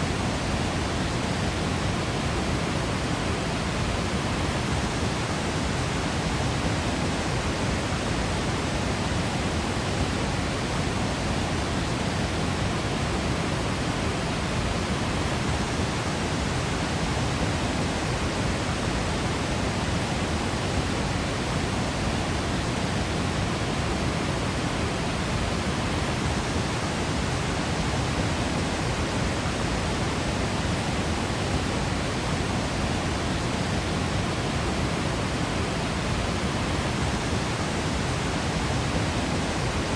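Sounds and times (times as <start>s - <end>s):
waterfall crashing: 20.7s - 39.9s.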